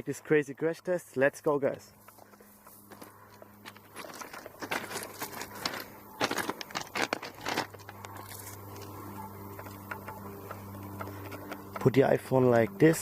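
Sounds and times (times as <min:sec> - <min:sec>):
low hum: 0:00.0 - 0:13.0
rustling and crackling: 0:01.8 - 0:12.0.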